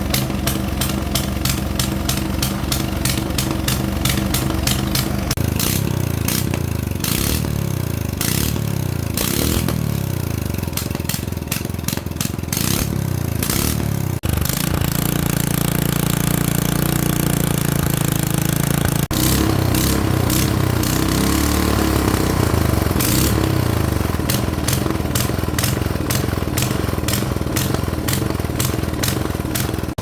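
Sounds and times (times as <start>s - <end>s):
small gasoline engine running: 0.0s - 30.0s.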